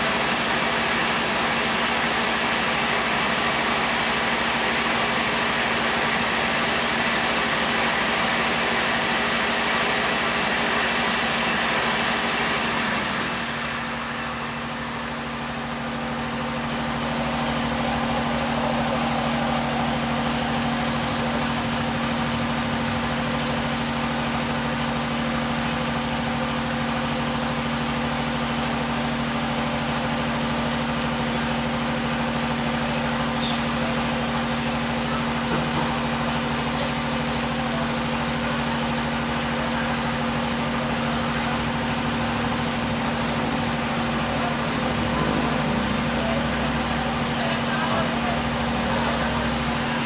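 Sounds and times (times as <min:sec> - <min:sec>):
brief high hiss: 0:33.3 - 0:34.2.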